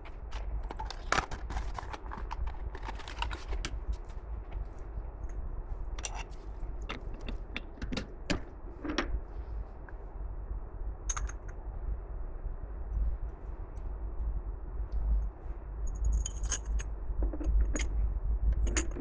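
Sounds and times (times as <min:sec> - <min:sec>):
steady low hum: 0:00.0 - 0:19.0
metal parts and tools clicking: 0:06.0 - 0:09.2, 0:16.2 - 0:17.9, 0:18.6 - 0:19.0.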